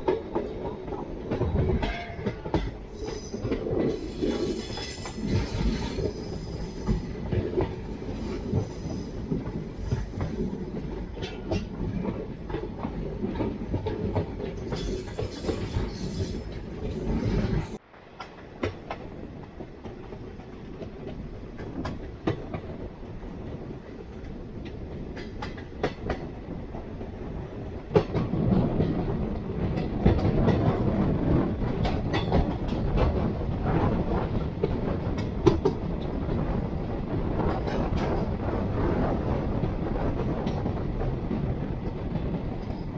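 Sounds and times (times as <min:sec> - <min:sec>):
passenger train running on track: 0:00.0 - 0:42.9
train wheels clicking over rail joints: 0:27.9 - 0:36.4.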